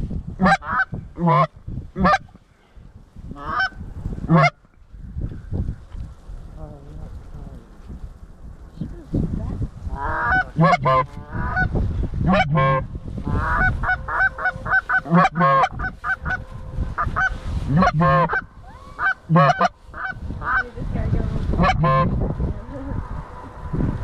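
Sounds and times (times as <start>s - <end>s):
goose calls honking: 3.4s - 4.6s, 9.9s - 20.8s, 21.6s - 22.1s.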